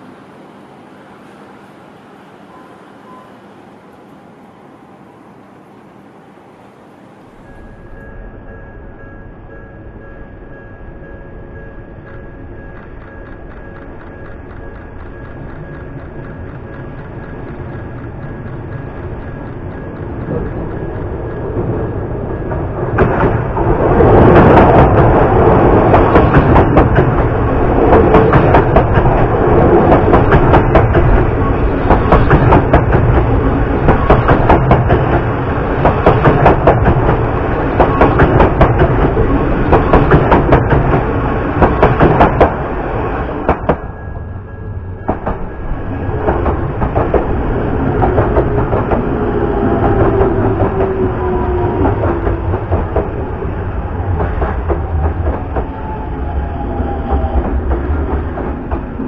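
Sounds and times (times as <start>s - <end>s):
faint motor whine: 0.0s - 21.6s
electric train rolling past: 0.0s - 59.0s.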